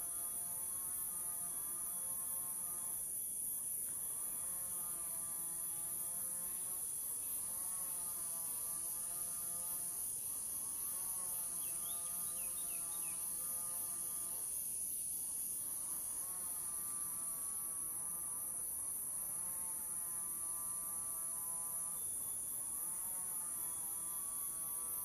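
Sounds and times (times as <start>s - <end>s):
insects chorus: 0.0s - 25.0s.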